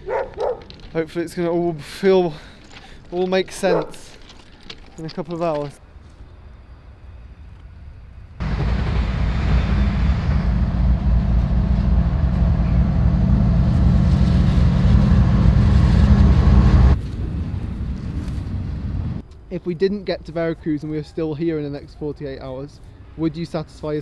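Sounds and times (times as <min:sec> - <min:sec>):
train rolling rumble: 0:06.4 - 0:19.3.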